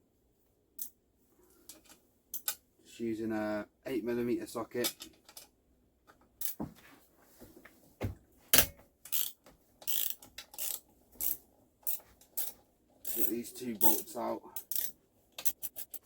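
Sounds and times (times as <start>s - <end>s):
socket ratchet clicking: 9.1s - 14.0s, 14.6s - 16.0s.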